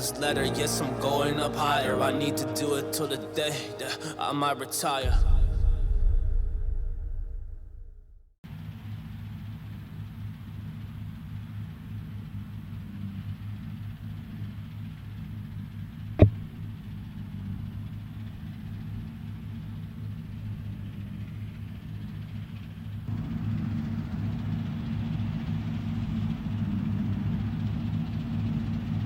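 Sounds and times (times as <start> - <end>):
combine harvester engine hum: 0.0 - 5.1
sharp knock: 16.2 - 16.4.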